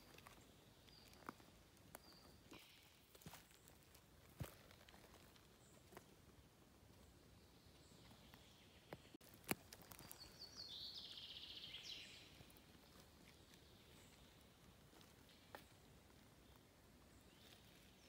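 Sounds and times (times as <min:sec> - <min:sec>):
forest ambience: 0:00.0 - 0:18.0
songbird trilling: 0:10.0 - 0:12.4.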